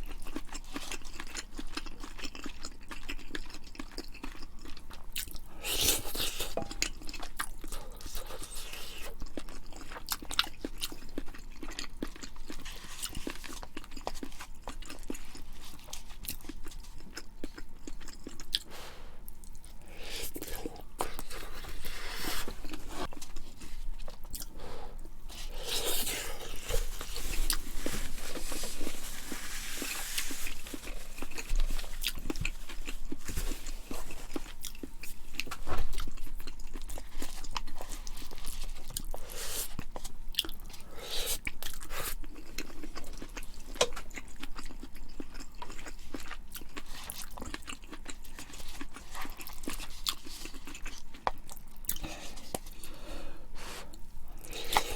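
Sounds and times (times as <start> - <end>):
chewing and crunching food: 0.0 - 54.9.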